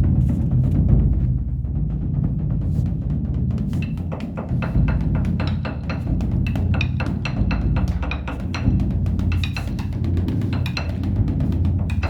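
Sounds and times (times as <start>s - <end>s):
deep drum boom: 0.0s - 5.4s
large drum beaten rapidly: 0.0s - 12.0s.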